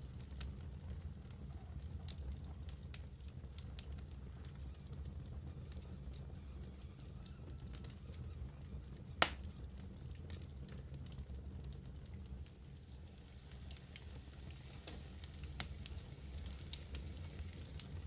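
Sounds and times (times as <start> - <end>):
wood fire crackling: 0.0 - 18.0
sharp pops of fire: 9.2 - 9.7, 13.7 - 18.0.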